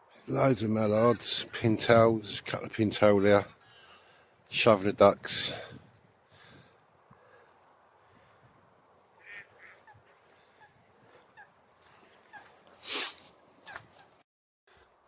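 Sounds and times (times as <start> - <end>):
waterfowl honking and quacking: 9.1 - 12.7.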